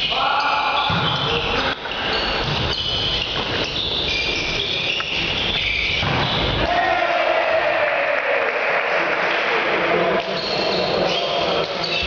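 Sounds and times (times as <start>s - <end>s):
shoes squeaking: 0.0s - 6.6s, 10.2s - 12.0s.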